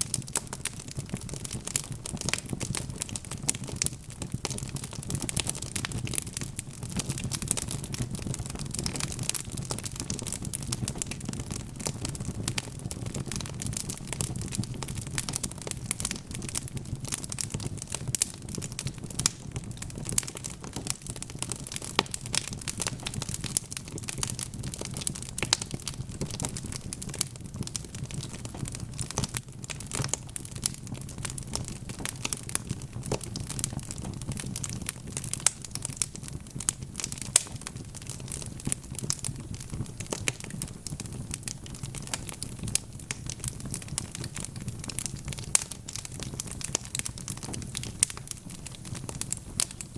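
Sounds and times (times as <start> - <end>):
logs crackling in a fireplace: 0.0 - 49.9.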